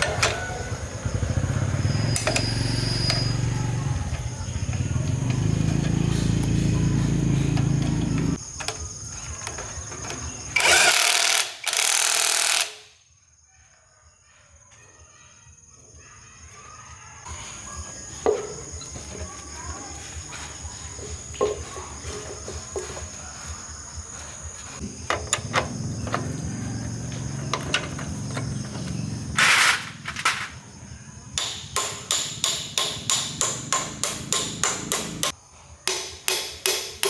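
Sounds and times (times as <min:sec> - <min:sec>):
motorcycle engine running: 0:00.0 - 0:10.6, 0:17.3 - 0:35.4
sharp knocks: 0:31.4 - 0:35.3.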